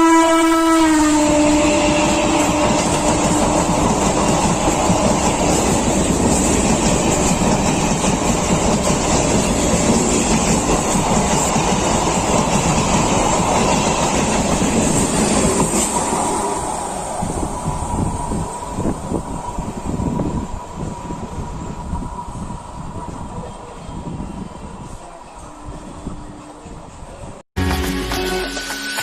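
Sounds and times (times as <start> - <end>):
train horn: 0.0 - 3.7
train passing at speed: 0.0 - 27.4.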